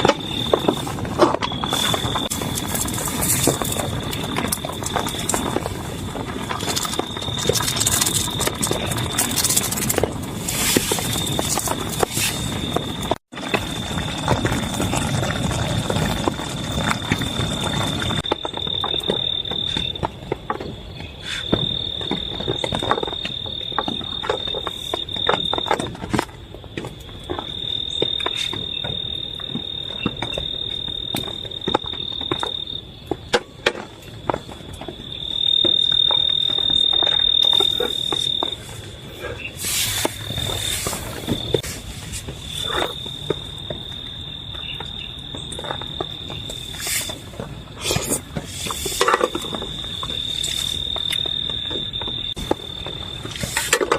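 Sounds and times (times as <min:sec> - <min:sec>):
rain drops tapping: 0:01.7 - 0:20.2, 0:34.4 - 0:38.7
high-pitched insect trill: 0:34.9 - 0:38.8, 0:42.4 - 0:53.8.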